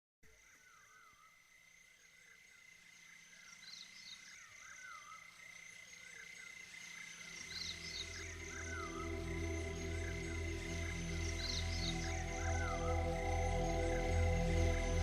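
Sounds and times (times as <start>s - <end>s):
steady thin high tone: 7.7s - 15.0s.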